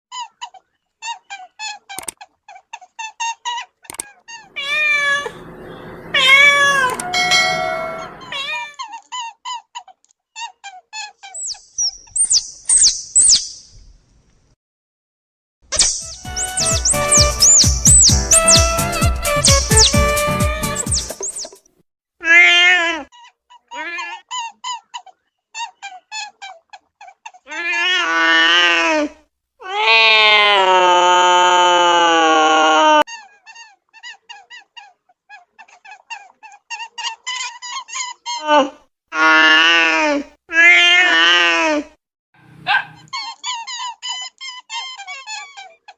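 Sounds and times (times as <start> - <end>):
cat meowing: 4.5 - 8.8
short high chirps: 15.7 - 21.6.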